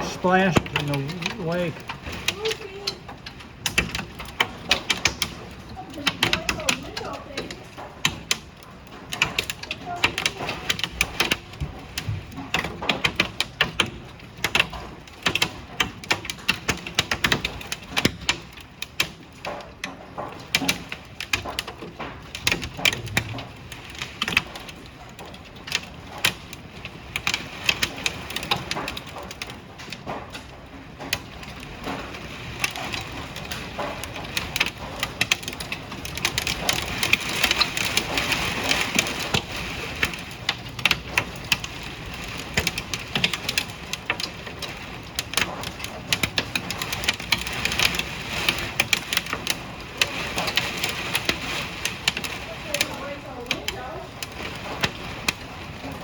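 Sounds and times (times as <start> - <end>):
rain hiss: 0.0 - 3.0
hailstones clattering: 0.0 - 56.0.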